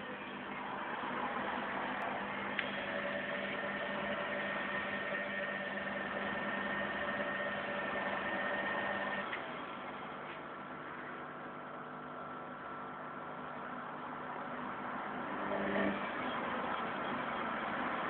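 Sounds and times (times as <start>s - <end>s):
vacuum cleaner motor whining: 1.4s - 10.4s.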